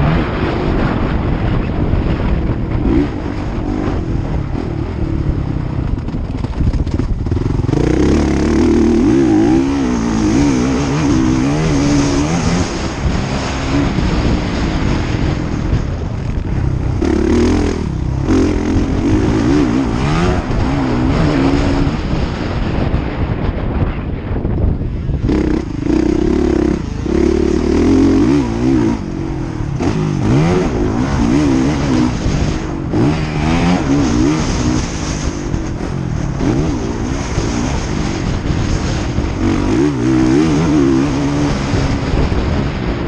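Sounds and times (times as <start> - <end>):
motocross bike engines revving: 0.0 - 23.2, 24.8 - 43.0.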